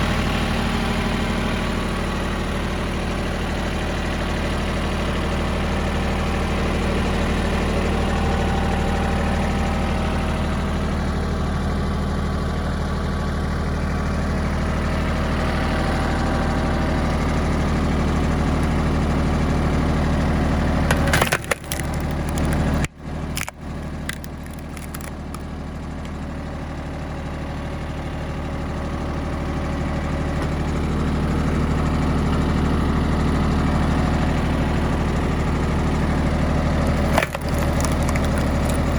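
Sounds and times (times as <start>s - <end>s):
tractor diesel engine running: 0.0s - 38.9s
log cracking and splitting: 20.8s - 25.5s, 36.8s - 38.9s.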